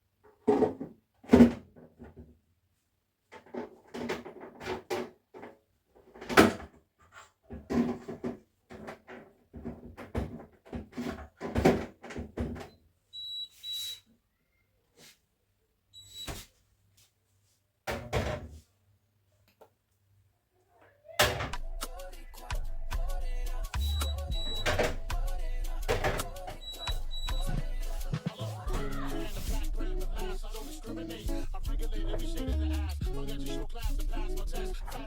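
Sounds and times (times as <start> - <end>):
household things knocking and clattering: 0.3 - 2.4, 3.3 - 6.8, 7.5 - 12.7, 24.5 - 25.2, 25.9 - 26.4
short high beeps: 23.8 - 24.9, 26.5 - 27.6.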